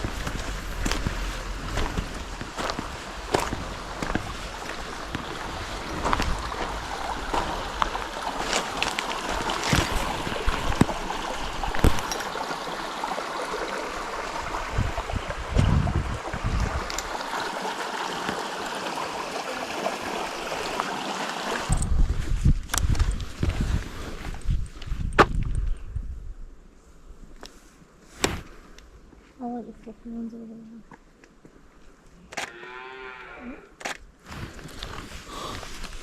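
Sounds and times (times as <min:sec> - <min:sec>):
stream water rushing: 0:00.0 - 0:21.8.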